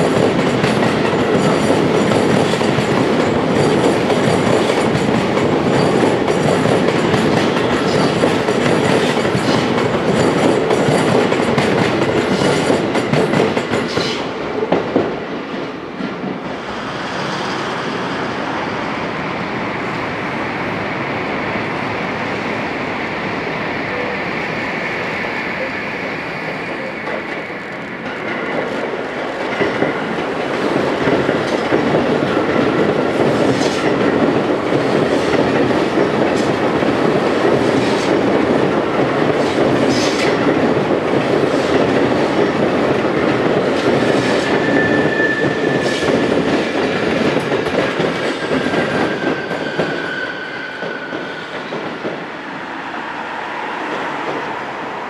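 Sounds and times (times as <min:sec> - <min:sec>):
train wheels clattering over joints: 0:00.0 - 0:15.1, 0:26.4 - 0:52.2
train wheel squeal: 0:23.8 - 0:27.9, 0:44.0 - 0:46.8, 0:48.2 - 0:52.0.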